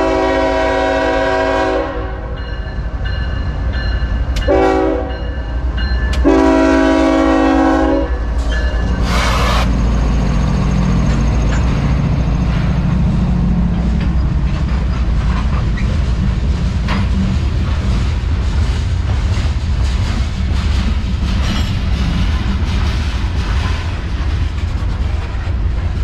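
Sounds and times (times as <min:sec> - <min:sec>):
locomotive engine drone: 0:05.2 - 0:26.0
wheel-on-rail rumble: 0:08.3 - 0:26.0.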